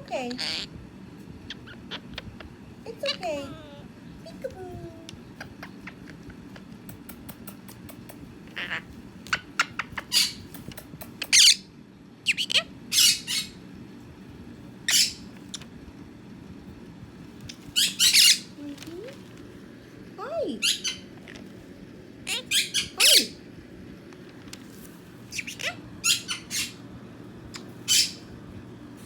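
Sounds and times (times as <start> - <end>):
parrot squawking: 0.3 - 0.7, 1.5 - 2.3, 8.5 - 8.9, 9.6 - 10.4, 11.3 - 13.6, 14.9 - 15.2, 17.7 - 18.6, 20.6 - 21.1, 22.2 - 23.4, 25.3 - 26.8, 27.8 - 28.3.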